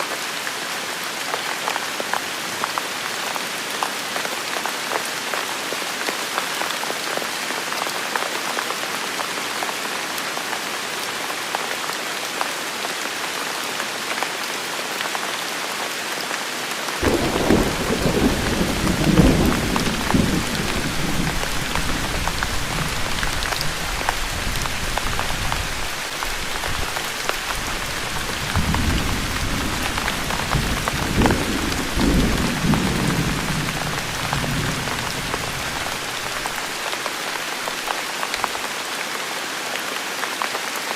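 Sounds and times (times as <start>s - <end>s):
heavy rain: 0.0s - 40.9s
thunder rumble: 17.0s - 25.4s, 27.7s - 36.4s.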